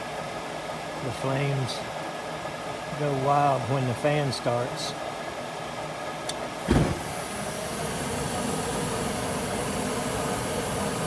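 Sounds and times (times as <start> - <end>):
gas burners igniting thump: 6.2 - 11.0
gas burners rushing: 6.3 - 11.0.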